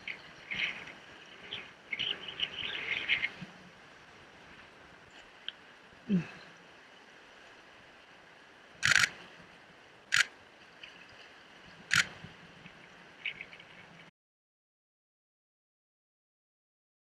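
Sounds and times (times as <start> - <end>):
faint bird chirps: 0.0 - 3.4
camera shutter firing: 8.8 - 9.1.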